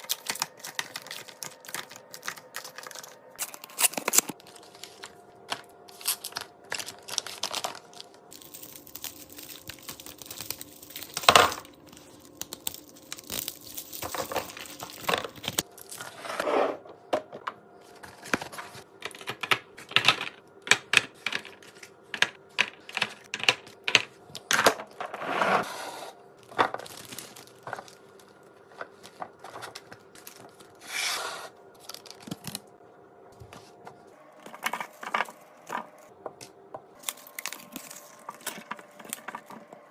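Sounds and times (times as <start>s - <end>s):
food packaging tearing and crinkling: 0.0s - 16.2s, 26.4s - 30.9s, 31.8s - 32.7s, 37.0s - 39.7s
faint steady hum: 0.0s - 39.9s.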